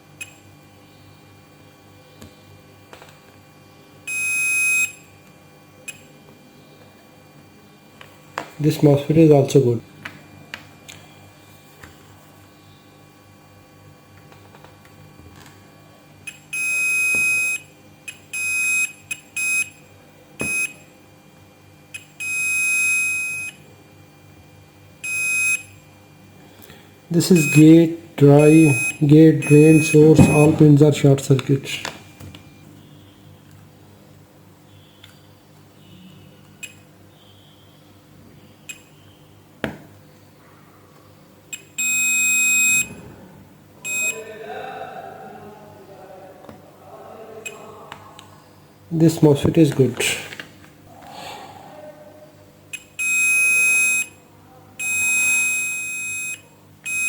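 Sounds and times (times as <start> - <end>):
multimeter buzzer beeping: 4.0 - 6.2, 16.2 - 20.9, 21.9 - 23.7, 25.0 - 25.9, 27.2 - 30.7, 38.5 - 39.4, 41.5 - 43.0, 43.8 - 44.3, 52.7 - 54.2, 54.8 - 57.0.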